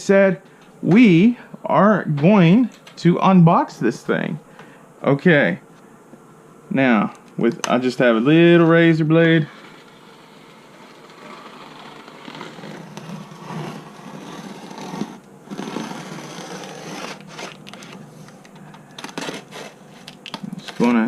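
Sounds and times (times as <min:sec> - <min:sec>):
razor blade cutting cardboard: 0:09.5 - 0:18.0, 0:19.0 - 0:19.9.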